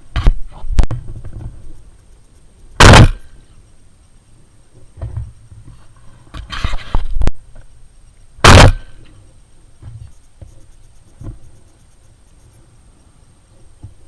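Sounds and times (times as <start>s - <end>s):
shotgun shot: 2.8s - 3.3s, 8.4s - 9.0s.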